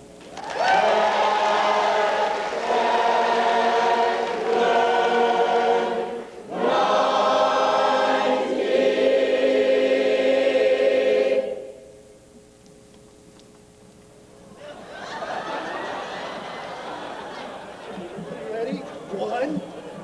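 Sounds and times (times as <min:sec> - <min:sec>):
group of voices singing chords: 0:00.6 - 0:12.1.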